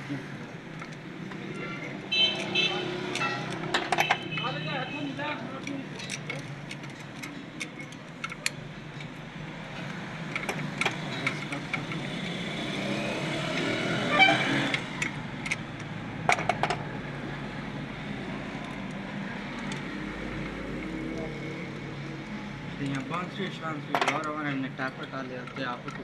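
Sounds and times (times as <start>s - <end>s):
metal tools clicking and clinking: 0.7s - 4.8s, 5.5s - 9.2s, 9.8s - 12.3s, 22.8s - 26.0s.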